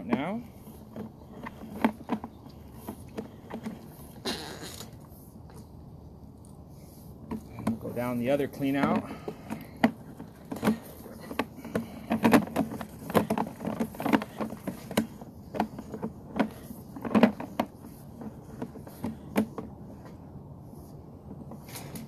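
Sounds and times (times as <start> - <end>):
camera cable knocking in pipe: 8.8 - 19.7.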